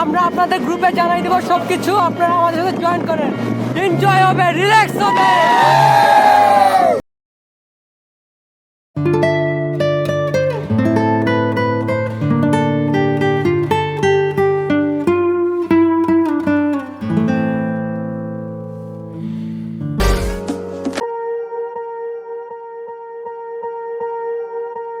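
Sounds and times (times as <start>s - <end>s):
acoustic guitar picking: 9.0s - 20.9s.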